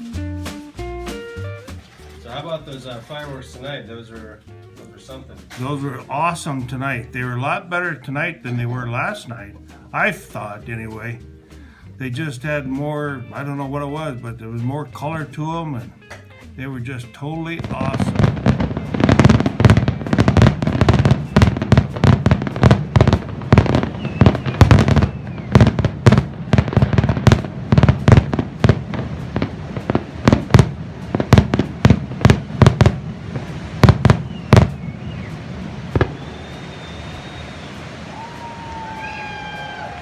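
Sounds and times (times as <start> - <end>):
fireworks booming bursts: 14.8 - 40.0
steady hiss: 17.6 - 40.0.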